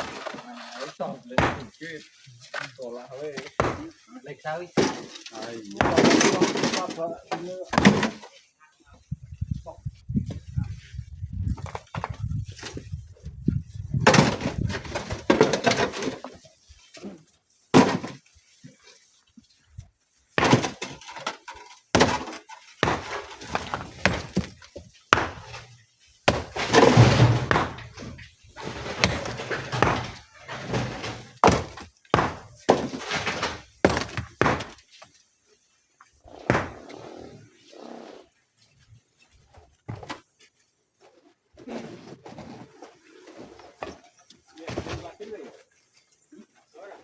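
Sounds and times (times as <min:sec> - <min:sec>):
rocks clattering into dump truck: 0:00.0 - 0:01.8, 0:03.3 - 0:04.0, 0:04.7 - 0:08.3, 0:13.9 - 0:16.5, 0:17.7 - 0:18.2, 0:20.3 - 0:34.8, 0:36.4 - 0:36.8.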